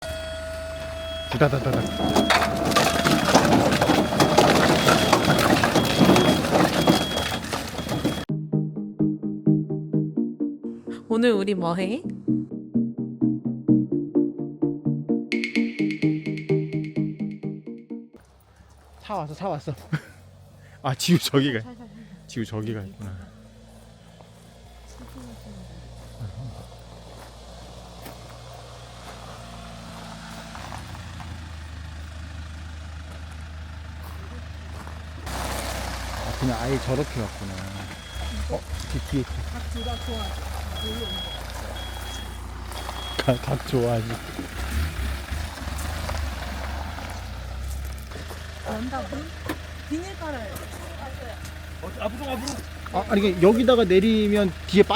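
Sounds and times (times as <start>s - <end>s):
truck engine running: 0.0s - 8.3s, 18.2s - 54.9s
firewood logs clattering: 1.6s - 8.3s, 35.2s - 48.5s
plucked background music: 8.3s - 18.2s.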